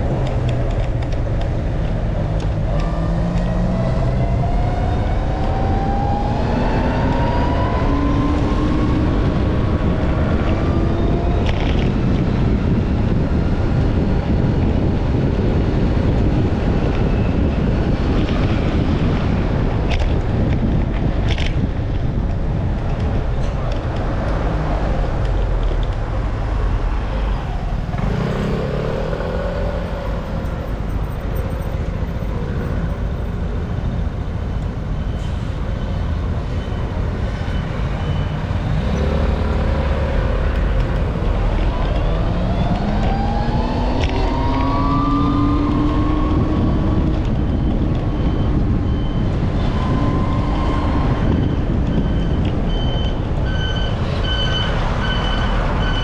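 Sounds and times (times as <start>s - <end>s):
road traffic: 0.0s - 56.0s
vehicle engines accelerating: 0.0s - 56.0s
wind buffeting microphone: 0.0s - 56.0s
high-pitched beep: 51.4s - 56.0s.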